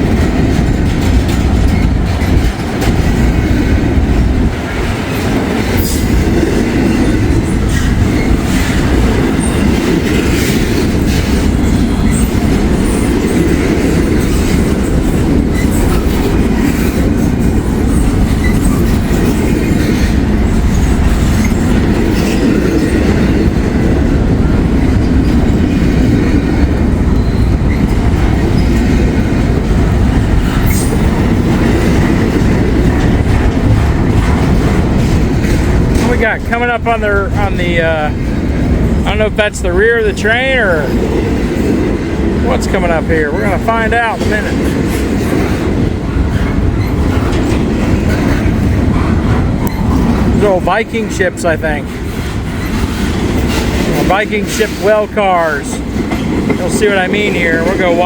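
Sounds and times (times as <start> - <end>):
freight train rumbling: 0.0 - 58.0
wheels clacking over rail joints: 0.0 - 58.0
high wheel squeals: 17.9 - 19.4, 27.1 - 28.8.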